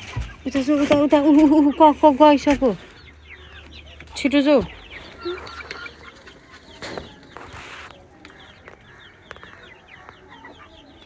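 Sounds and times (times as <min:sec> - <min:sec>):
baby chicks peeping: 0:00.0 - 0:11.0
scuffling noise: 0:06.2 - 0:08.2.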